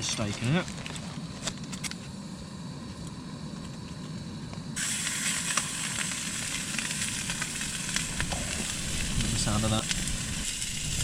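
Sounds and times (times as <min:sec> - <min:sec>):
steak sizzling in a pan: 0:04.8 - 0:11.0.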